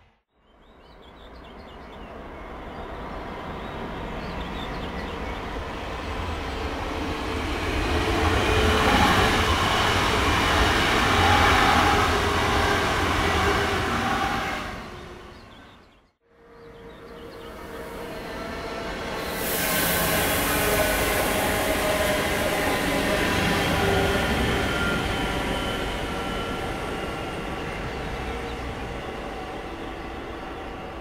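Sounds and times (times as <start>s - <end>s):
passenger train running past: 1.5s - 31.0s.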